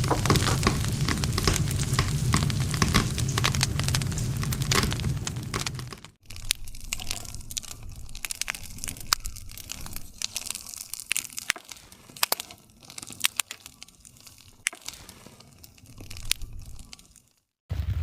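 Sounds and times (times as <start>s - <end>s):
campfire crackling and popping: 0.0s - 18.0s
low rush of flames: 0.0s - 18.0s.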